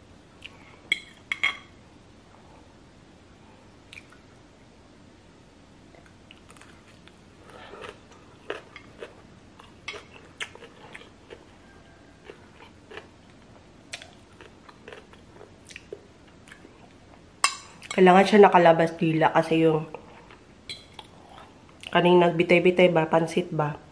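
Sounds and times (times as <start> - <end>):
person chewing noodles: 6.3 - 17.0.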